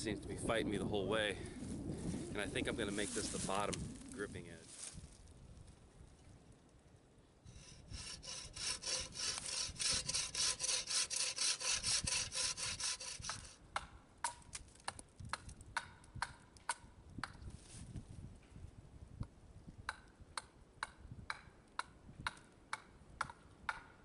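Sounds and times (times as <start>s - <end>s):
hand saw cutting wood: 7.5s - 13.6s.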